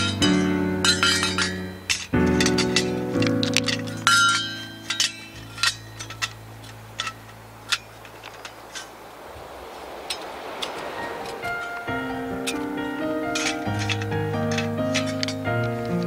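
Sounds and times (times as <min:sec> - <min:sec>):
background music: 0:00.0 - 0:07.7, 0:11.0 - 0:16.0
dishes clinking: 0:00.0 - 0:09.0, 0:13.3 - 0:16.0.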